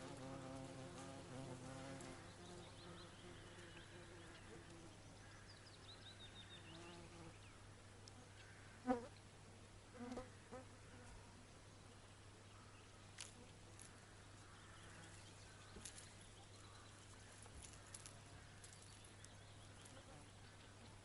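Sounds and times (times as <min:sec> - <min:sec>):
faint clicks and rustles: 0:13.1 - 0:20.3.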